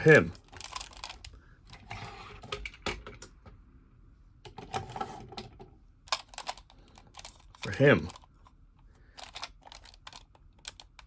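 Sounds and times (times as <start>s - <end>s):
plastic toy parts clicking: 0.4s - 1.3s, 6.1s - 8.3s, 9.2s - 11.0s
plastic pieces scraping: 0.4s - 2.8s.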